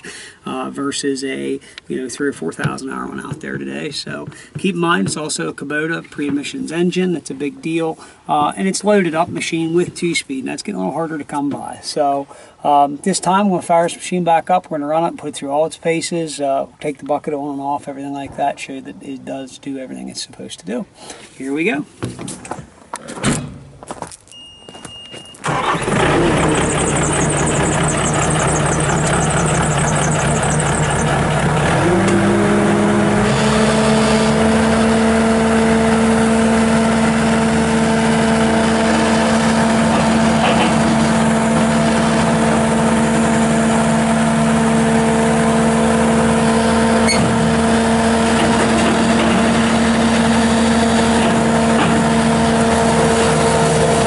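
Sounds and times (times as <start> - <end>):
short beep: 24.3 - 25.5
diesel engine starting and idling: 25.4 - 54.0.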